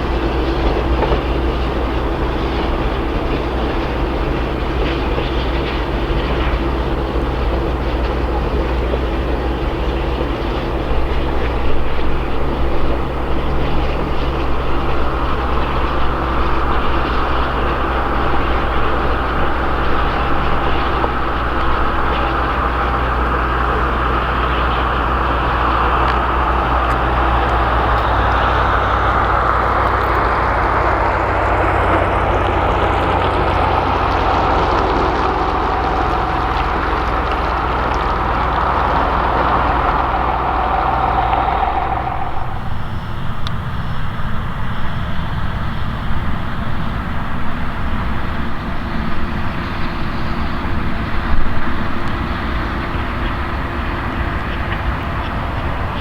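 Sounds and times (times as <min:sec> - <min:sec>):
train rumbling on track: 0:00.0 - 0:56.0
high rushing sound: 0:39.9 - 0:43.7.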